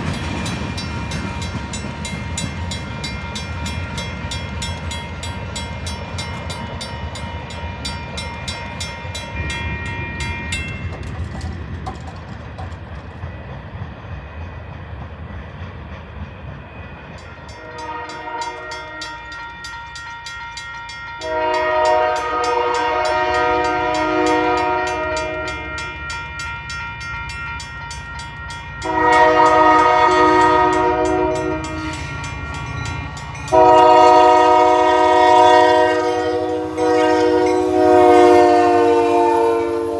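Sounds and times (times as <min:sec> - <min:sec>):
train rumbling on rails: 0:00.0 - 0:39.9
locomotive air horn blasts: 0:17.6 - 0:19.3, 0:21.2 - 0:26.6, 0:28.8 - 0:32.1, 0:33.5 - 0:39.9.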